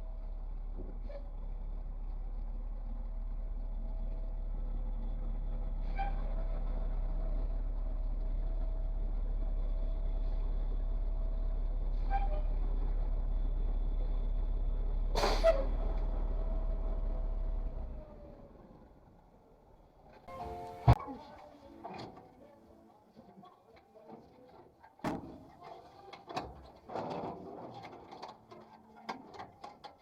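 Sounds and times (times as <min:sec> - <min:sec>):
vehicle engine idling: 0:00.0 - 0:21.6.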